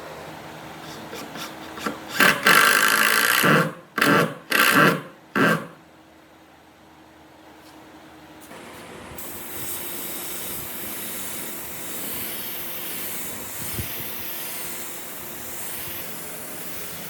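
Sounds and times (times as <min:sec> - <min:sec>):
hand tool scraping wood: 0:00.8 - 0:05.8.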